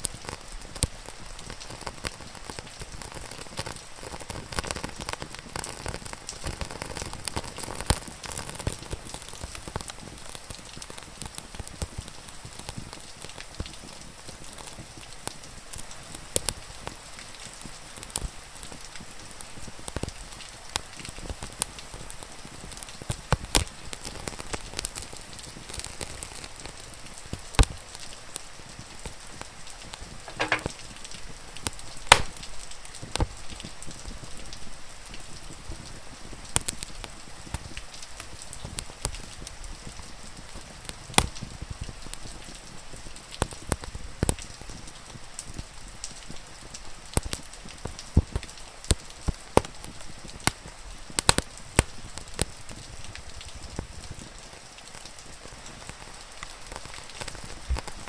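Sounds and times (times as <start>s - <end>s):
rain hiss: 0.0s - 58.0s
wood fire crackling and popping: 0.0s - 58.0s.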